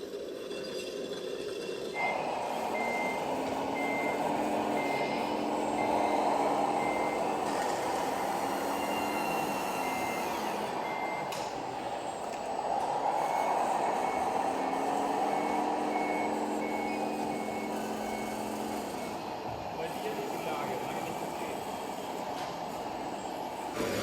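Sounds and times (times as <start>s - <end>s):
simulated diesel engine: 0.0s - 24.0s
reversing beeper: 1.9s - 12.4s, 13.0s - 19.3s.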